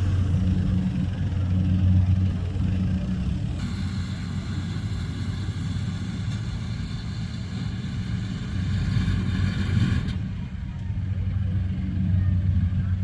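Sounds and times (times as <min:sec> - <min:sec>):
combine harvester engine drone: 0:00.0 - 0:13.0
mechanical whine: 0:03.1 - 0:10.3.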